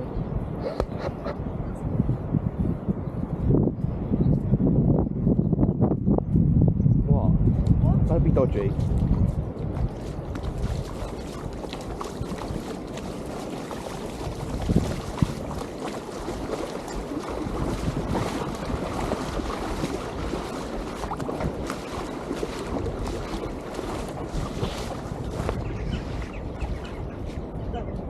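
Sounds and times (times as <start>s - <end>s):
wind buffeting microphone: 0.0s - 28.0s
steady rushing like surf: 7.8s - 27.8s.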